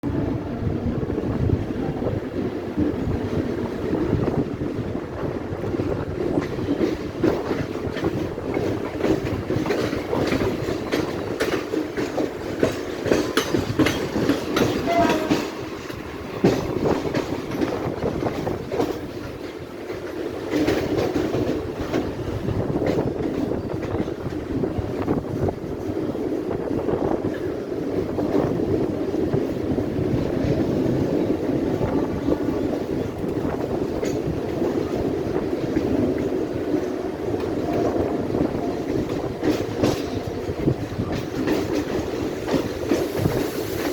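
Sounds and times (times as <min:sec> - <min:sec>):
train rumbling: 0:00.0 - 0:43.9
wheels clicking over rail joints: 0:02.8 - 0:43.9.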